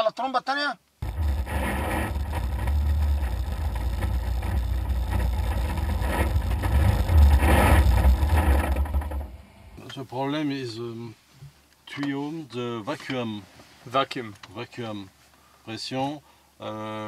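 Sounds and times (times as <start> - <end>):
buggy engine running: 1.0 - 9.8.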